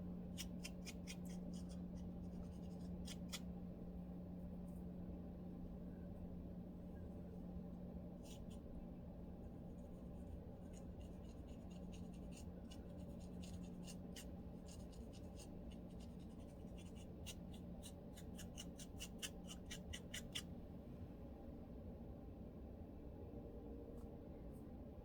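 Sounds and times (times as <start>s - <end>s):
comb scratching scalp: 0.3s - 3.4s, 9.7s - 20.5s.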